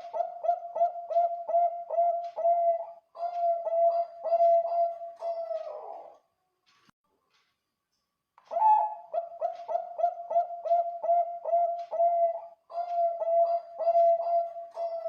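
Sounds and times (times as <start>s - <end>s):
dove cooing: 0.0s - 6.2s, 8.5s - 15.0s.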